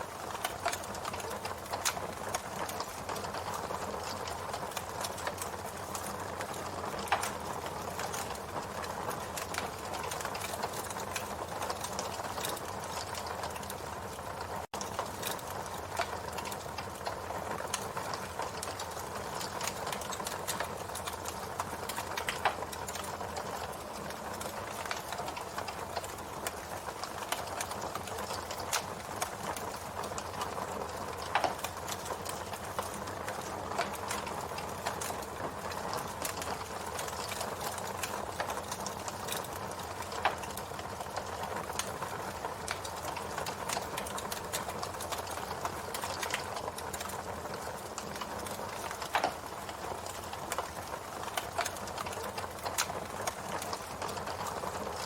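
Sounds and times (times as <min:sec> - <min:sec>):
campfire crackling: 0:00.0 - 0:55.0
fire popping: 0:00.0 - 0:55.0.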